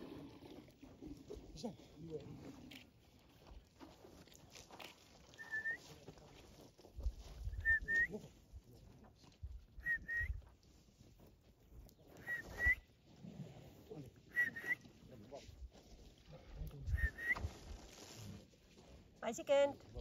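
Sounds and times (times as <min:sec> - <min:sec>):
bird whistling call: 0:12.2 - 0:12.8, 0:14.3 - 0:14.8, 0:16.9 - 0:17.6.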